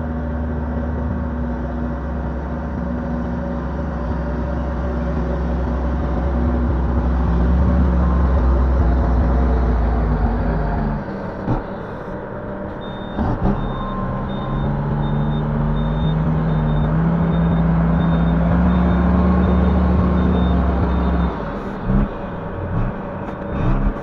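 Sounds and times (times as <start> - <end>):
excavator diesel engine: 0.0 - 24.0
faint high beep: 11.0 - 24.0.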